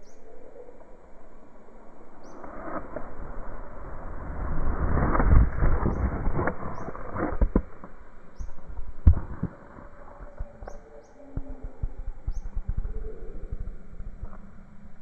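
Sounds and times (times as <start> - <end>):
bird chirping: 0.0 - 1.3, 2.0 - 2.6, 5.8 - 7.4, 8.2 - 14.9
low rumble: 0.0 - 15.0.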